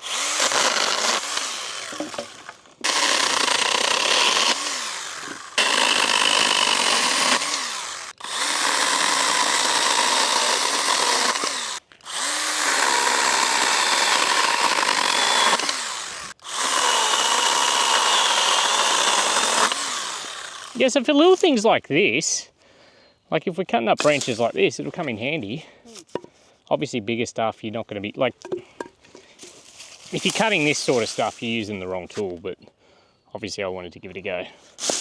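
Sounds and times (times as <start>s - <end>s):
chainsaw cutting branches: 0.0s - 21.5s, 24.0s - 24.5s, 29.4s - 31.5s, 34.8s - 35.0s.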